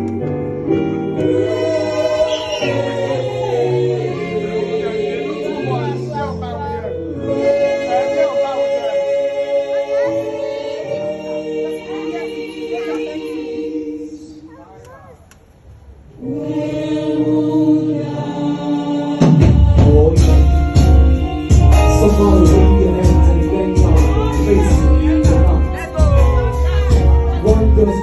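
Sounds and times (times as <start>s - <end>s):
gospel singing over held chords: 0.0s - 14.7s, 15.6s - 28.0s
bass and drums: 19.2s - 28.0s.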